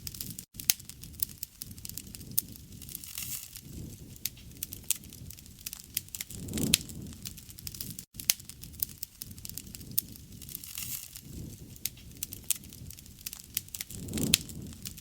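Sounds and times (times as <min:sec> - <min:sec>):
low rumble of burning: 0:00.0 - 0:15.0
wood fire crackling and popping: 0:00.0 - 0:15.0.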